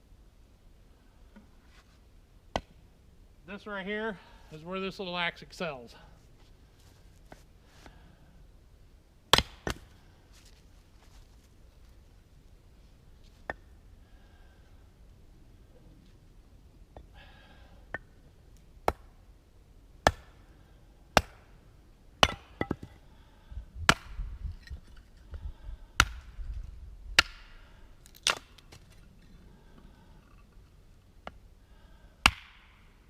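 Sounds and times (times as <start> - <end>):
axe chopping firewood: 9.3 - 9.9, 18.8 - 19.2, 20.0 - 20.4, 21.1 - 21.5, 22.2 - 23.0, 23.9 - 24.6, 26.0 - 26.4, 27.2 - 28.9, 32.2 - 32.8.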